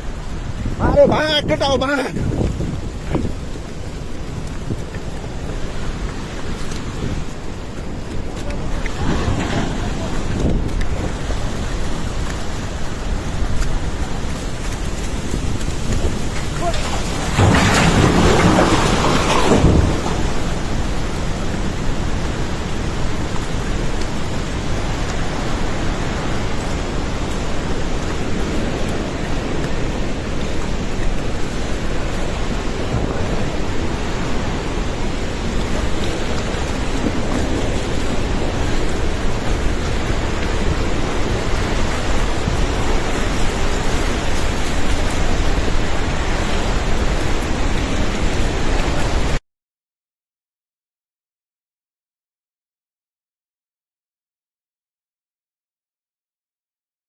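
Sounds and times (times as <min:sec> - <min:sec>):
floodwater rushing: 0:00.0 - 0:49.4.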